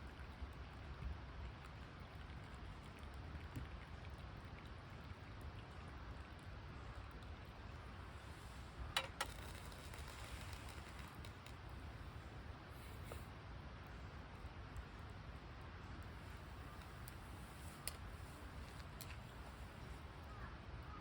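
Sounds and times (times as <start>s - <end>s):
campfire hissing and crackling: 8.1s - 20.0s.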